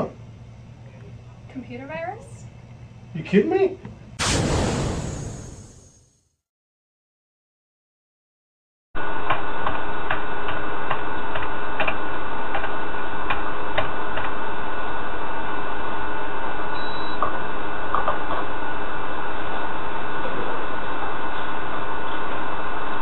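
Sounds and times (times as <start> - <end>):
faint hum: 0.0 - 6.0
loud steady hiss: 4.2 - 6.1.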